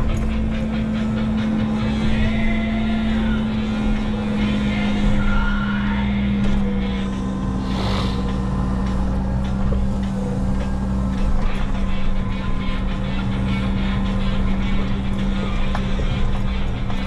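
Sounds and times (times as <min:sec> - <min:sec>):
short hiss: 0:07.6 - 0:08.4.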